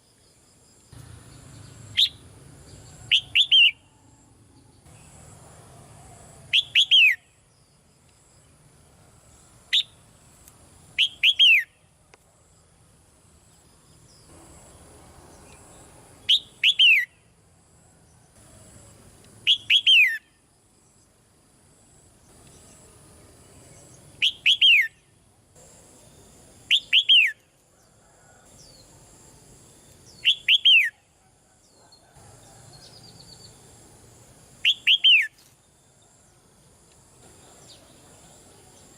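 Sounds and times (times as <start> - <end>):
bird whistled calls: 3.1 - 3.8, 6.5 - 7.2, 11.0 - 11.8, 16.3 - 17.1, 19.5 - 20.3, 24.2 - 25.0, 26.7 - 27.4, 30.2 - 31.0, 34.6 - 35.4.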